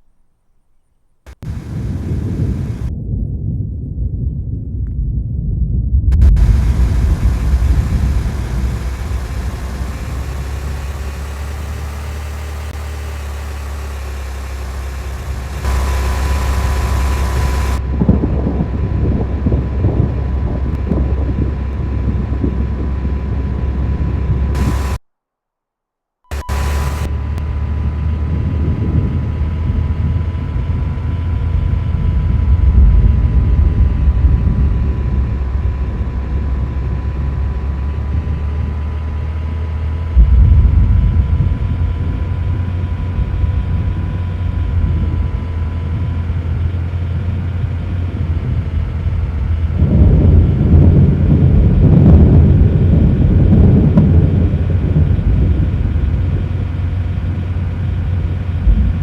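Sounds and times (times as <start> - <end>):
loud uneven low rumble: 0.0 - 25.0, 26.3 - 59.0.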